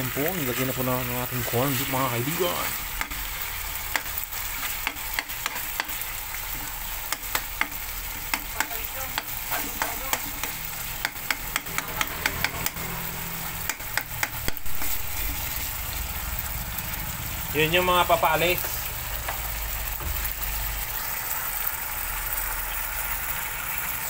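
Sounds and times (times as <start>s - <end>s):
food sizzling in wok: 0.0s - 24.0s
metal spoon scraping wok: 1.4s - 16.0s
spoon clicking against pan: 7.1s - 12.8s.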